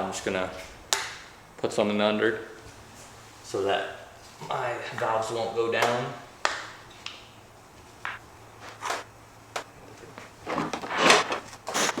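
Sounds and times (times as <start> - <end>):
scraping and rummaging: 10.0 - 12.0.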